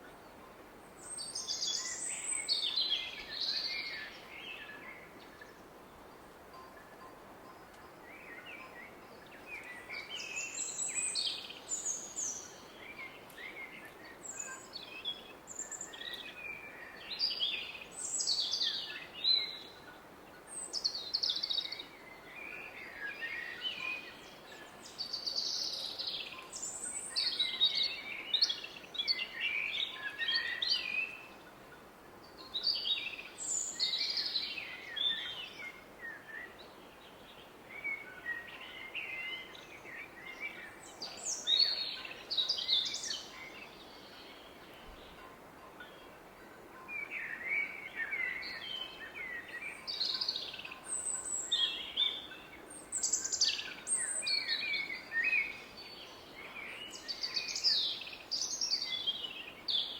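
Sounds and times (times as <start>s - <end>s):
birds singing: 32.3s - 45.2s, 46.8s - 59.9s.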